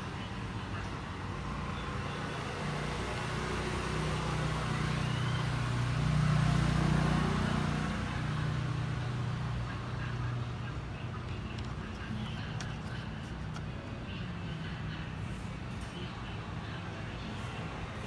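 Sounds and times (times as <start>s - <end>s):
vehicle engine running: 4.6s - 15.5s.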